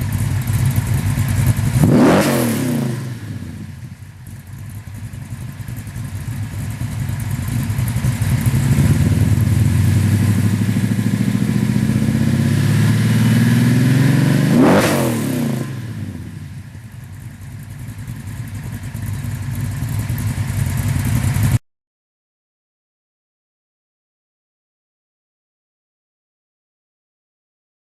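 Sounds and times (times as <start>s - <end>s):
car engine exhaust roaring: 0.0s - 21.6s.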